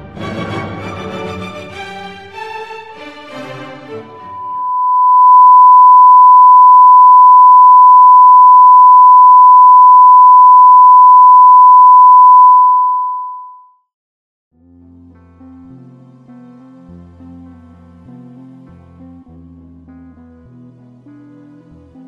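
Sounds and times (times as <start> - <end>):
steady test tone beep: 4.3 - 13.7.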